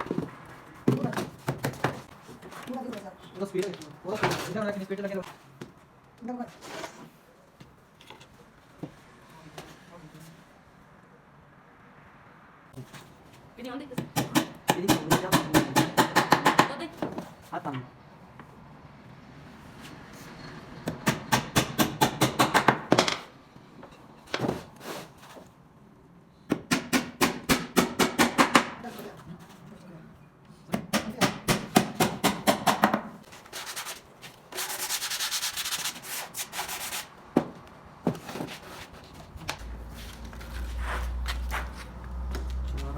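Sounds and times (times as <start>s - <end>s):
sanding wood by hand: 33.4s - 37.1s.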